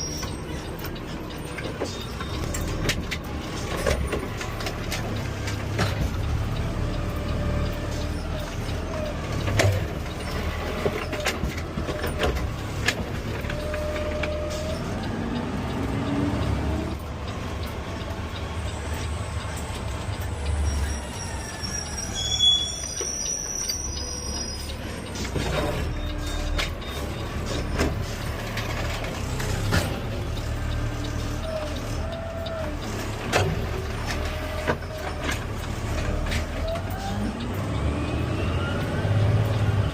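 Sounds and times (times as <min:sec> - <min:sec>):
garbage truck engine rumble: 0:00.0 - 0:39.9
high squeals: 0:20.2 - 0:28.2.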